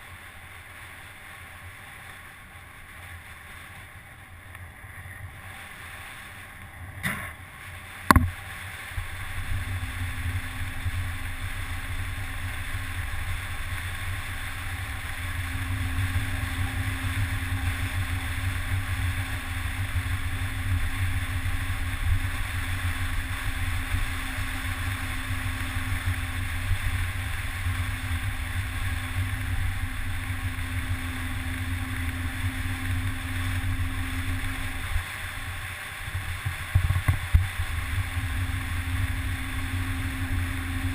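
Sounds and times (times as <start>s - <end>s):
faint steady hum: 0.0s - 40.9s
wind rumble on microphone: 0.0s - 40.9s
sharp knocks: 8.1s - 8.4s.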